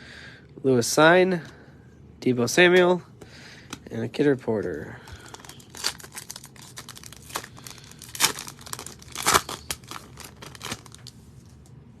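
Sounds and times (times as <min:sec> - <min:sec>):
plastic wrapper tearing and crinkling: 0:05.1 - 0:11.6.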